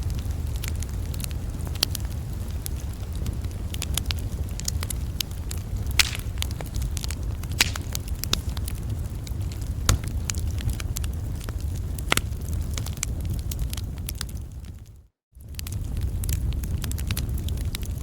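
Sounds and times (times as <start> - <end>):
campfire wood crackling and popping: 0.0 - 18.0
steady low rumble: 4.5 - 11.0.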